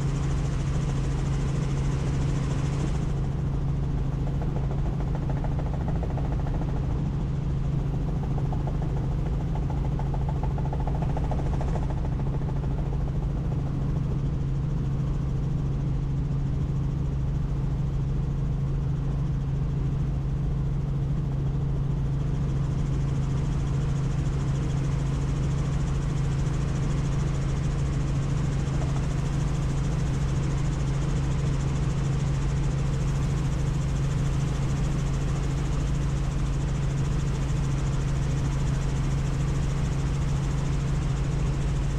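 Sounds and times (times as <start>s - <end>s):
helicopter rotor and turbine drone: 0.0s - 41.9s.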